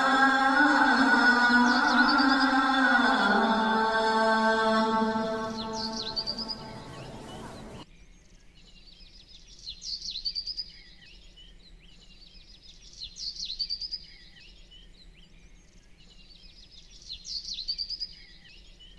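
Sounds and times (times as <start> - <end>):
bird chirps and trills: 0.2 - 18.9
faint steady hiss: 4.8 - 13.0.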